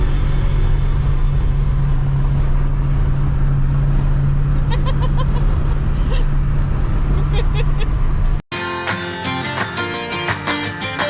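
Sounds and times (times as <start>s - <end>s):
car driving rumble: 0.0s - 8.4s.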